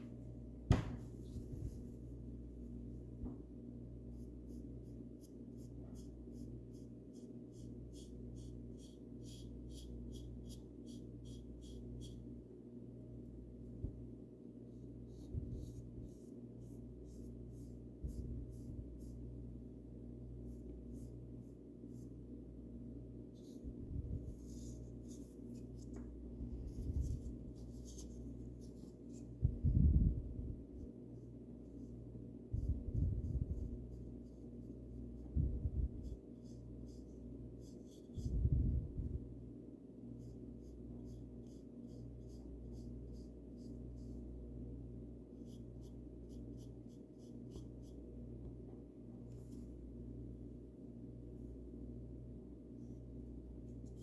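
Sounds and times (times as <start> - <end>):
paint brush strokes: 0.0 - 3.2, 4.0 - 12.3, 14.7 - 19.5, 20.2 - 22.4, 23.2 - 39.3, 40.1 - 48.2
steady low hum: 0.0 - 54.0.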